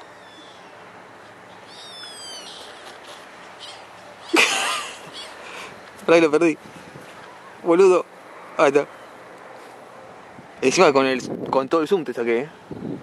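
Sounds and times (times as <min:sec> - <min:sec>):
faint outdoor hiss: 0:00.0 - 0:13.0
bird whistled calls: 0:01.6 - 0:02.9.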